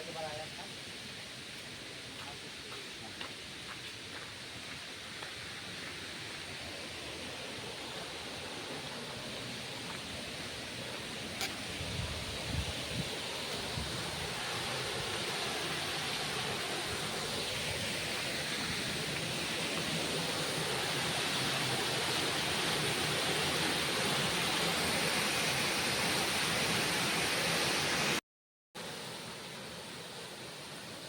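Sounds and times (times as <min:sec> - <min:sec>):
waterfall rushing: 0:05.6 - 0:28.2.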